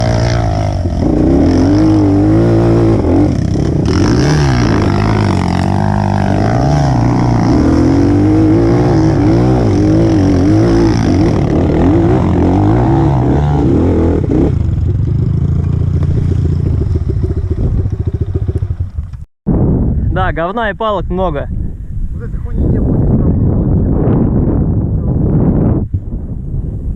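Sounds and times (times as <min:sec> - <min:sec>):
motorcycle engine revving: 0:00.0 - 0:19.2.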